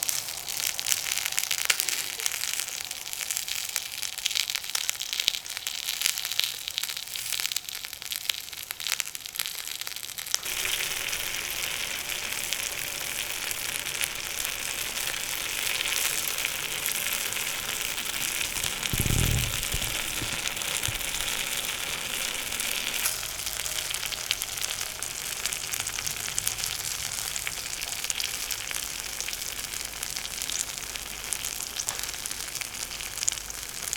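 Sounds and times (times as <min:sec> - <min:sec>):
food sizzling in a hot pan: 0:00.0 - 0:33.9
low thump: 0:18.9 - 0:21.3.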